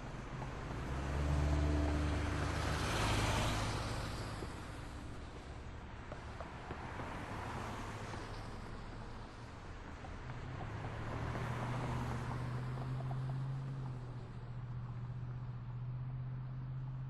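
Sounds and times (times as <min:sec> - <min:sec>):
city traffic: 0:00.0 - 0:17.0
vehicle passing by: 0:00.7 - 0:04.4.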